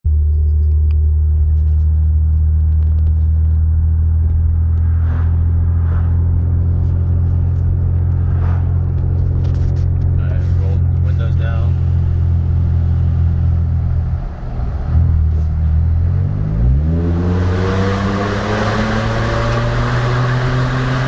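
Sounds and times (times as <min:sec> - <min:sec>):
truck exhaust idling: 0:00.8 - 0:16.2.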